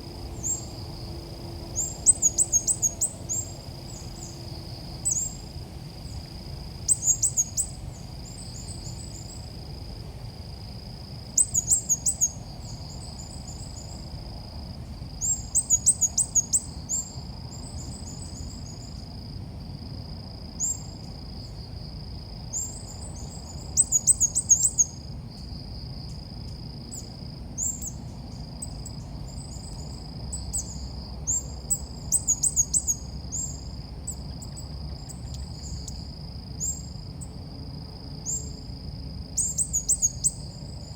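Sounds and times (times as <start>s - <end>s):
bird chirping: 1.8s - 4.3s.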